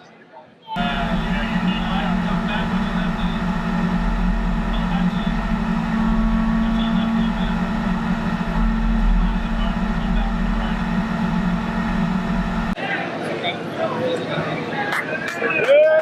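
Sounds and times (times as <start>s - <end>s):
diesel engine running: 0.8s - 12.8s.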